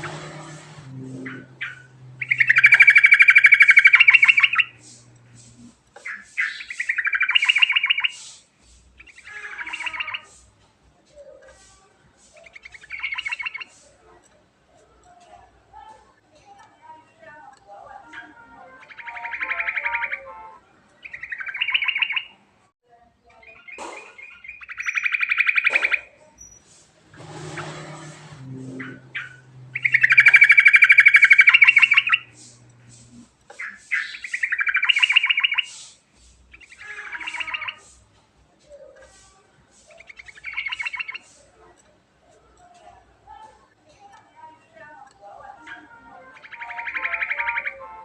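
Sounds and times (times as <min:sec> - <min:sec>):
bird singing fast trills: 0:00.0 - 0:05.1, 0:06.0 - 0:08.3, 0:09.0 - 0:10.4, 0:12.4 - 0:13.8, 0:18.0 - 0:20.4, 0:21.0 - 0:22.4, 0:23.4 - 0:26.6, 0:27.5 - 0:32.6, 0:33.6 - 0:35.8, 0:36.5 - 0:38.0, 0:39.9 - 0:41.3, 0:45.6 - 0:48.0.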